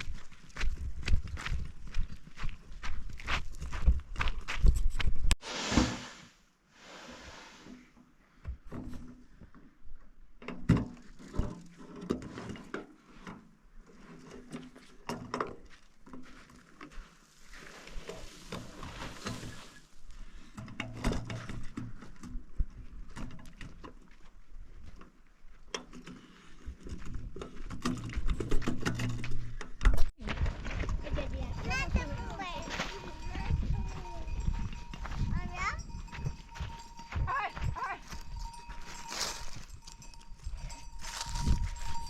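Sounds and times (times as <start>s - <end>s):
rustling hiss: 5.4s - 7.8s
objects knocking and clattering: 20.6s - 24.0s, 26.7s - 30.1s.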